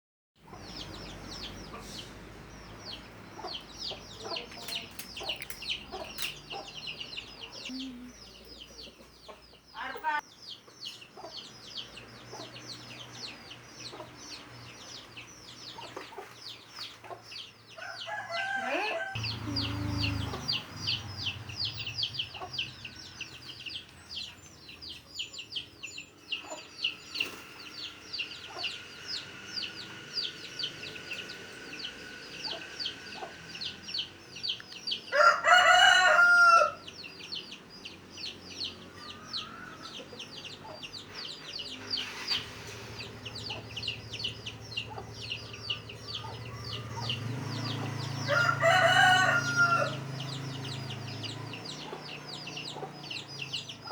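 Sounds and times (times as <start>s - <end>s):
chickens peeping and clucking: 0.4s - 53.9s
rooster crowing: 17.8s - 21.3s, 35.1s - 36.9s, 39.0s - 40.0s, 46.1s - 51.4s.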